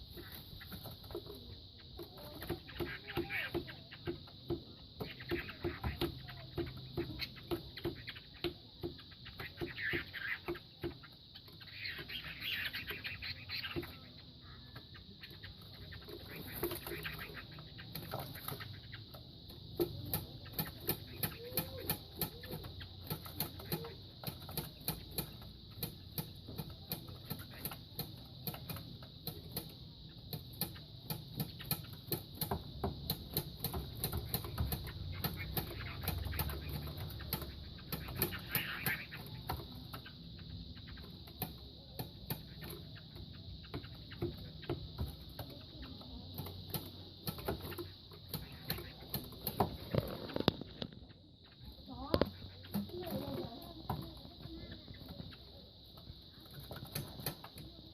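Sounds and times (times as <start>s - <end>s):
birds knocking: 0.0s - 57.9s.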